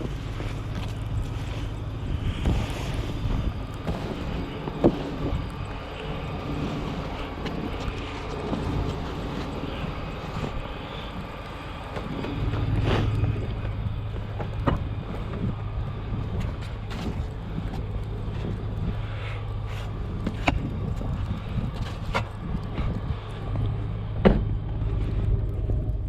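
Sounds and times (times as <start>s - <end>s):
snow plow engine running: 0.0s - 26.0s.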